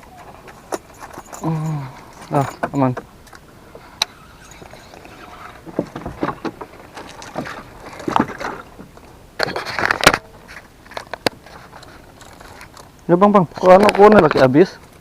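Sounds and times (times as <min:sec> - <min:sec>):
gear knocking and rustling: 0:04.1 - 0:15.0.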